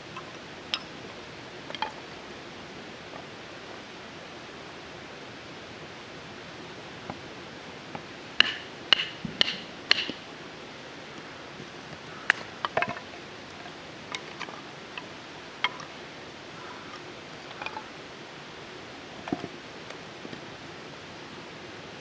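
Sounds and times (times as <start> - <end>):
steady hiss: 0.0 - 22.0
sharp hard knocks: 8.4 - 10.3.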